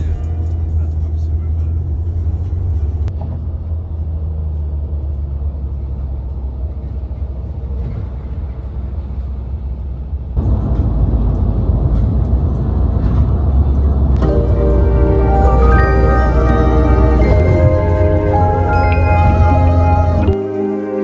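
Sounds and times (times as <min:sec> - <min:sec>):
car engines rumbling: 0:00.0 - 0:20.4.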